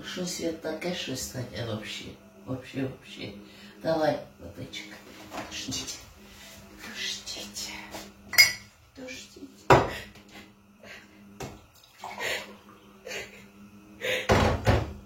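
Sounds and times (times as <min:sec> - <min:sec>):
cups and dishes clinking: 0:08.3 - 0:08.7.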